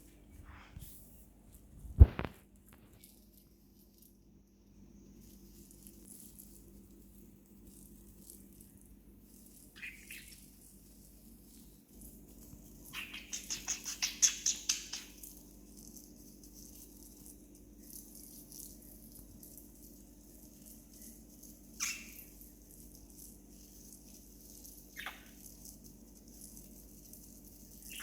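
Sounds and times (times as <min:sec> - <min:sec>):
budgie chirping: 0:09.8 - 0:10.5, 0:12.8 - 0:15.4, 0:21.7 - 0:22.4, 0:24.9 - 0:25.5, 0:27.8 - 0:28.0.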